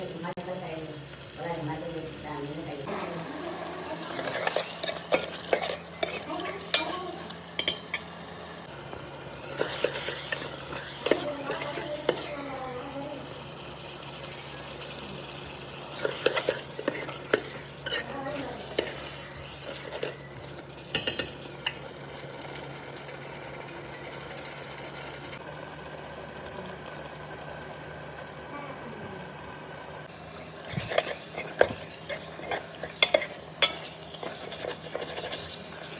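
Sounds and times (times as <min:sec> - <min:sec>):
faint hum: 0:00.0 - 0:35.9
frying sizzle: 0:00.0 - 0:35.9
metal utensil scraping a pan: 0:04.1 - 0:08.1, 0:09.5 - 0:12.4, 0:16.0 - 0:20.3, 0:30.7 - 0:35.9.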